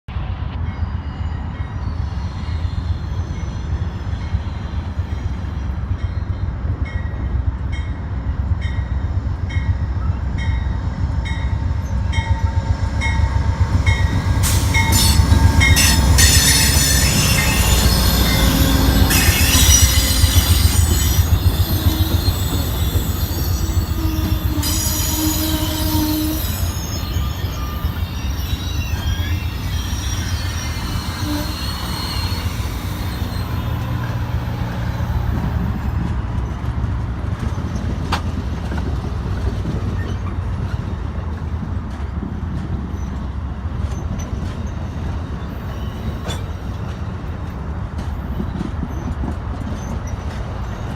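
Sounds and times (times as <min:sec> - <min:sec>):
passenger train rumbling past: 0:00.1 - 0:50.9
high-pitched wheel squeal: 0:00.8 - 0:06.4, 0:10.7 - 0:36.0
train wheels clicking on rails: 0:02.0 - 0:50.9.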